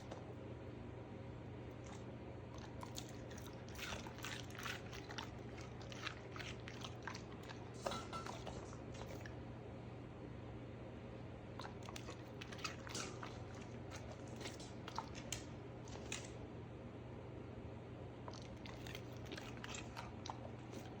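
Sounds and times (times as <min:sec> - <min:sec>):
steady low hum: 0:00.0 - 0:21.0
crunchy chewing of vegetables: 0:01.7 - 0:09.4, 0:11.5 - 0:16.5, 0:18.2 - 0:21.0.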